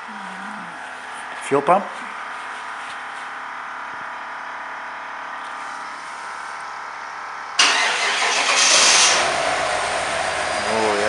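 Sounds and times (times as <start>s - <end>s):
fuel pump priming hum: 4.1s - 11.0s
car engine starting and running: 6.5s - 11.0s.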